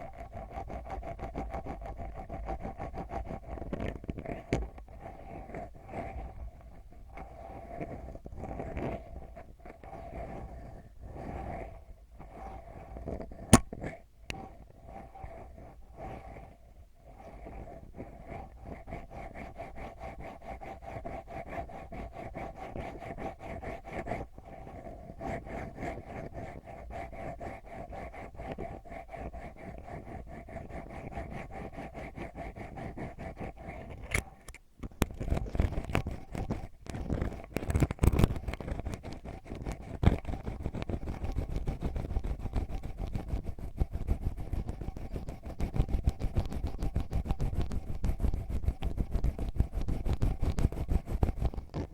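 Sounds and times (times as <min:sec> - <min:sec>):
ear pick scratching microphone: 0:13.2 - 0:14.0, 0:34.9 - 0:51.9.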